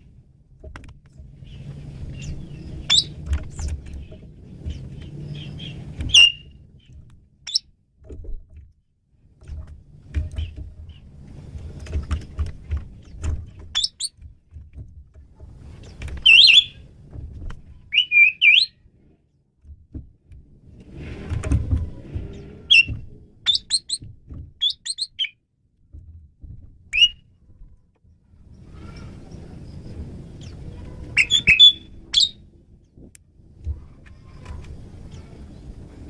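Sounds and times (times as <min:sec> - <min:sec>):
starling whistling and chattering: 0:02.1 - 0:03.2, 0:05.4 - 0:06.5, 0:13.8 - 0:14.1, 0:16.2 - 0:16.8, 0:17.9 - 0:18.7, 0:22.7 - 0:22.9, 0:23.5 - 0:24.0, 0:24.6 - 0:25.4, 0:26.9 - 0:27.2, 0:30.4 - 0:32.4.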